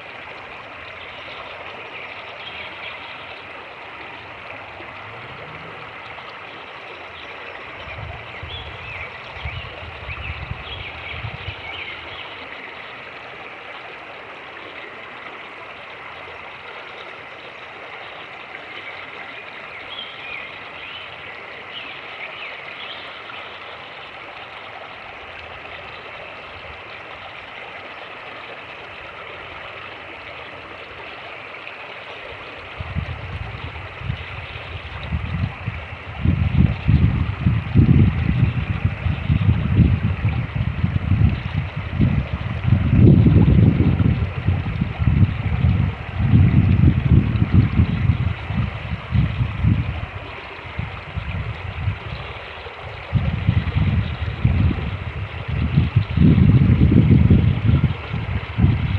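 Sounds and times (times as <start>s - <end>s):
creek rushing and gurgling: 0.0s - 58.9s
wind buffeting microphone: 7.7s - 11.8s, 32.6s - 58.9s.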